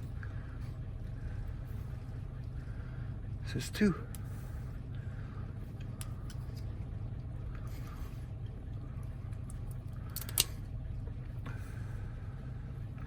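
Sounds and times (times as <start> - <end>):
steady low hum: 0.0 - 13.0
metallic clicks of lock parts: 9.5 - 10.6.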